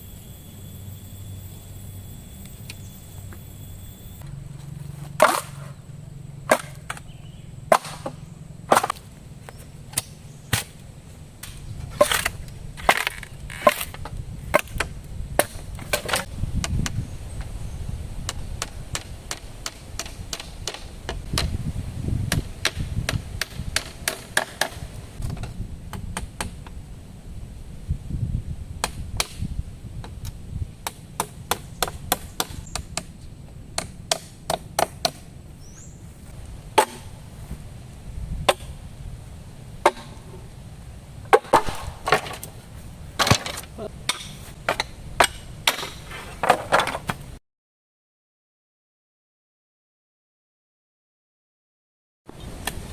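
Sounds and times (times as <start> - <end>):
blade chopping into wood: 5.2 - 5.8, 6.5 - 7.0, 7.7 - 9.1, 9.9 - 10.8, 22.3 - 25.4, 36.8 - 37.1, 39.8 - 40.2, 41.3 - 42.5, 43.2 - 47.1.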